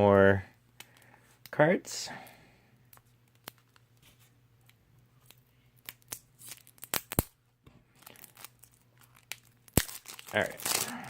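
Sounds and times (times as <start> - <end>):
wrapping ripping: 5.2 - 11.0.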